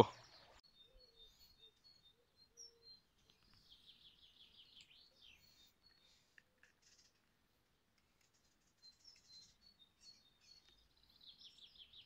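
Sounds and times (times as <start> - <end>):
bird trill: 0.0 - 6.1, 8.8 - 12.0
faint birdsong chirps: 0.0 - 12.0.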